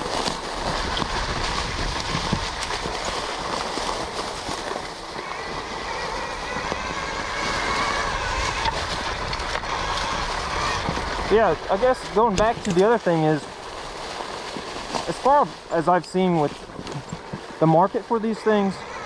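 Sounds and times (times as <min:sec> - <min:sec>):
wind rushing over microphone: 0:00.0 - 0:19.0
electric motor whine: 0:05.2 - 0:11.3.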